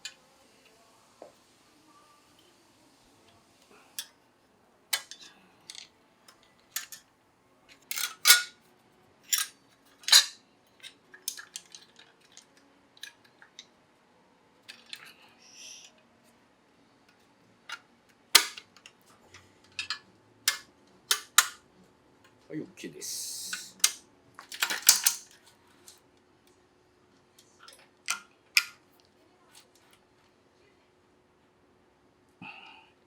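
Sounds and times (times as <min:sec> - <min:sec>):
metal parts and tools clinking: 0:04.9 - 0:07.0, 0:07.7 - 0:08.6, 0:09.2 - 0:13.6, 0:18.4 - 0:21.6, 0:23.5 - 0:26.0.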